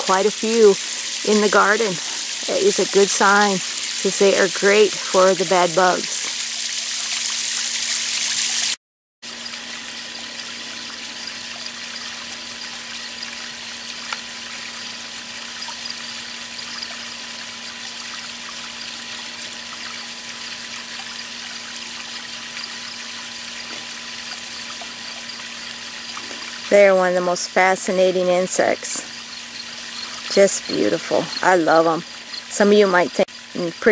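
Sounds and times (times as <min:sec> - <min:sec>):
running water hiss: 0:00.0 - 0:33.9
faint steady hum: 0:09.4 - 0:33.9.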